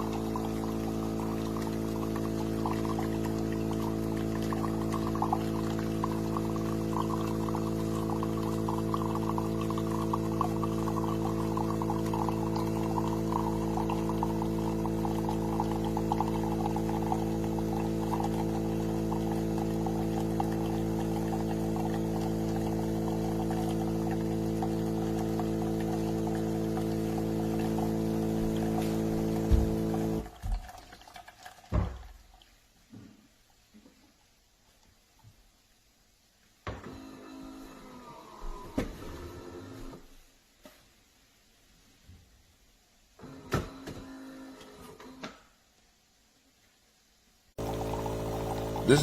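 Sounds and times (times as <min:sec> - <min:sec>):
espresso machine pump humming: 0:00.0 - 0:30.4, 0:47.6 - 0:49.0
liquid streaming into a cup: 0:00.0 - 0:32.6, 0:47.6 - 0:49.0.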